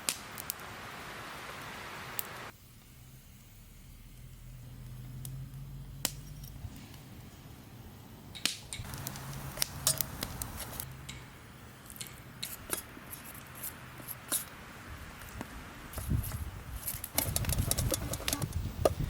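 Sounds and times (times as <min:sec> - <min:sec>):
small hard objects clicking: 0:16.9 - 0:19.0.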